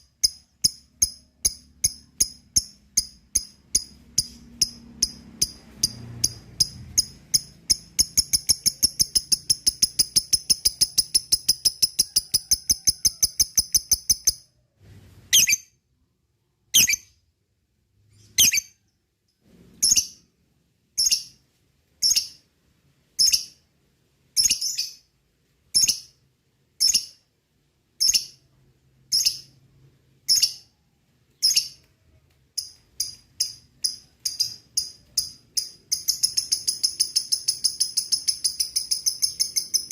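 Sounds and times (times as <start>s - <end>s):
lovebird chirping: 0.0s - 14.6s, 15.2s - 15.8s, 16.7s - 17.2s, 18.1s - 18.9s, 19.8s - 20.3s, 21.0s - 21.4s, 22.0s - 22.5s, 23.2s - 23.7s, 24.3s - 25.1s, 25.7s - 26.2s, 26.8s - 27.3s, 28.0s - 30.8s, 31.4s - 31.9s, 32.6s - 39.9s.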